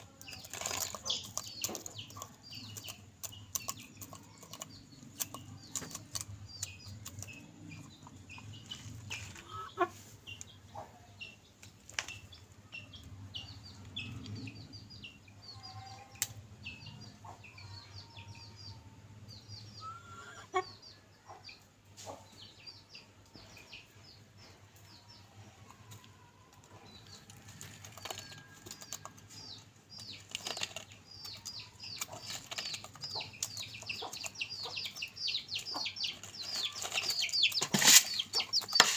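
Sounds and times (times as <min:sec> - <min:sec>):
chickens clucking: 0:00.0 - 0:38.9
chicks cheeping: 0:00.0 - 0:38.9.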